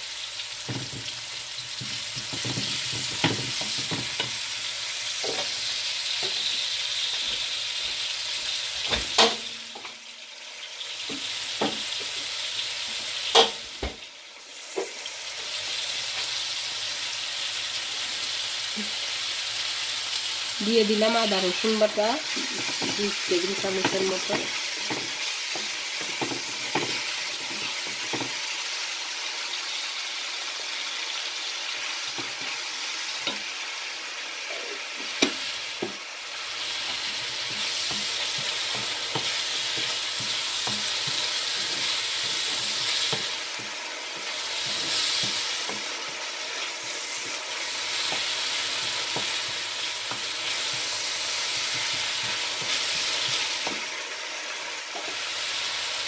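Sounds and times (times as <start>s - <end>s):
onions sizzling in a frying pan: 0.0s - 56.0s
wooden spoon knocking pan: 36.8s - 43.8s.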